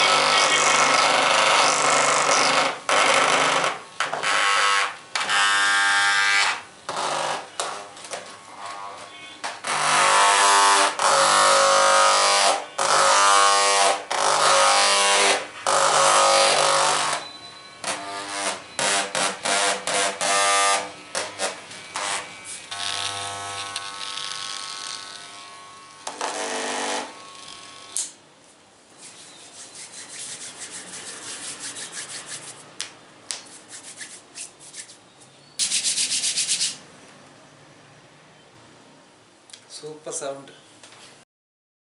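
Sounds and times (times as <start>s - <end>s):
small electric device buzzing: 17.9s - 28.2s
scratchy tapping and rubbing: 29.0s - 32.7s.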